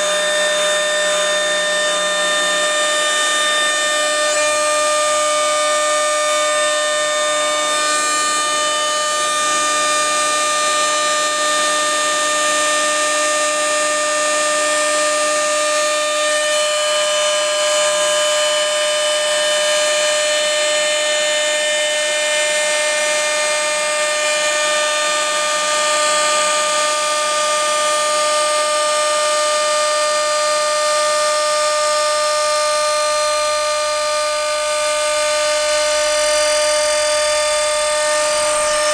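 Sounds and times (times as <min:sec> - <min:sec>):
machine cutting acrylic: 0:00.0 - 0:14.5, 0:33.8 - 0:38.9.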